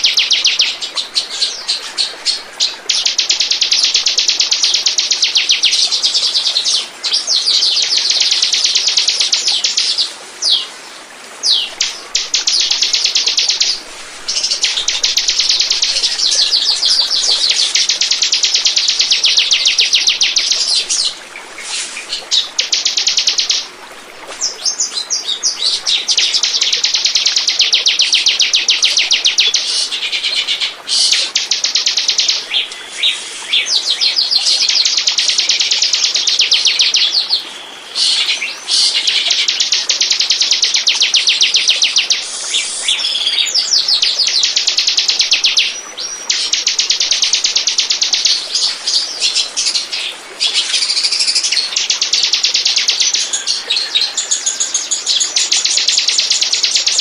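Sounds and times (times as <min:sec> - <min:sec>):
bird rapid high chirps: 0:11.5 - 0:23.6.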